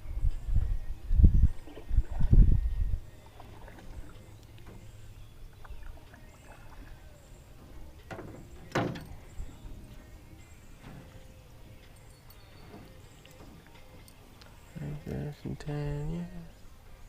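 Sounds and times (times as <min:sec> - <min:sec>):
people moving in boat: 0:00.0 - 0:17.0.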